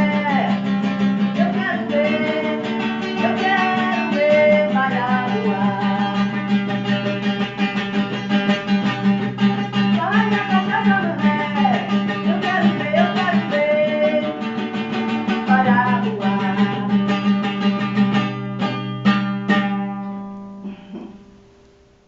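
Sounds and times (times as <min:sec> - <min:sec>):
person singing: 0:00.0 - 0:06.9, 0:09.5 - 0:17.4
acoustic guitar strumming: 0:00.0 - 0:22.0.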